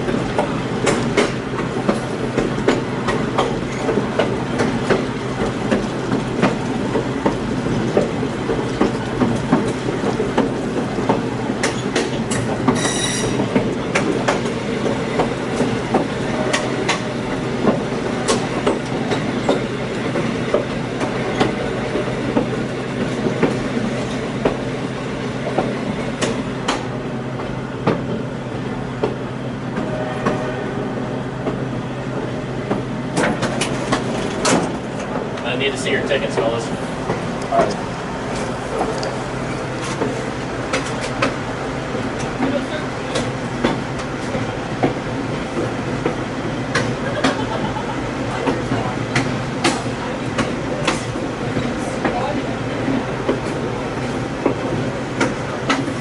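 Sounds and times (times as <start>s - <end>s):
railcar rumble and hum: 0.0s - 56.0s
high-pitched wheel squeal: 12.8s - 13.4s.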